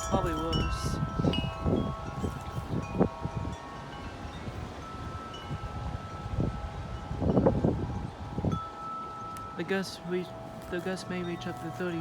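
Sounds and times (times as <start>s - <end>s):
tubular wind chimes ringing: 0.0s - 12.0s
wind buffeting microphone: 0.0s - 12.0s.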